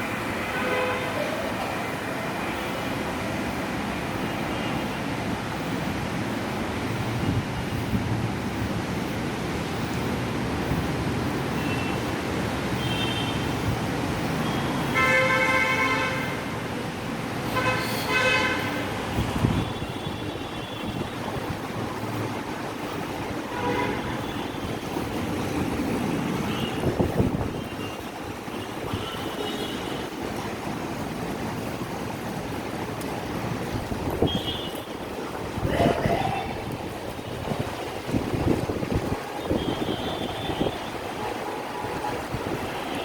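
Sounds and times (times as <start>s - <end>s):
road traffic noise: 0.0s - 43.0s
vehicle horn honking: 14.5s - 16.5s, 39.4s - 40.9s.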